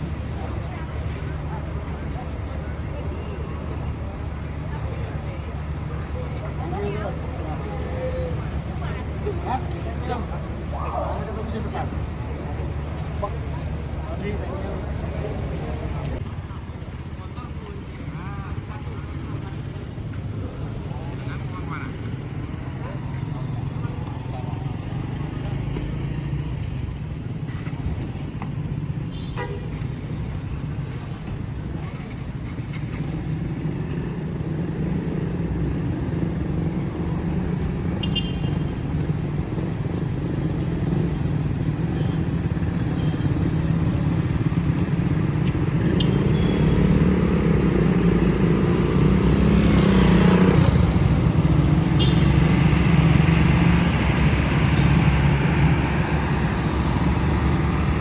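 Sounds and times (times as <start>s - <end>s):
motorcycle and car traffic: 0.0s - 58.0s
vehicle rushing past: 43.4s - 58.0s.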